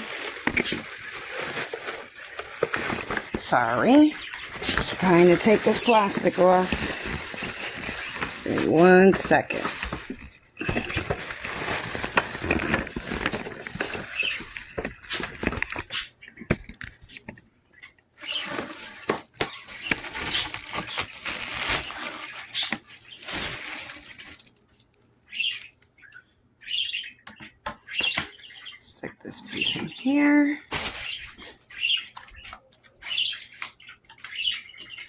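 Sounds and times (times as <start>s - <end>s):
plastic wrap crinkling: 0.0s - 17.2s, 18.2s - 24.9s, 30.6s - 32.4s.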